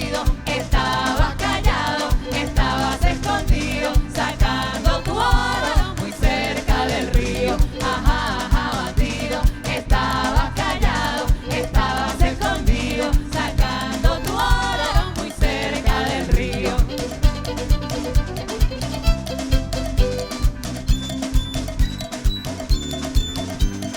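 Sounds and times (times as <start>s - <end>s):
person singing: 0.0s - 17.7s
live band music: 0.0s - 23.9s.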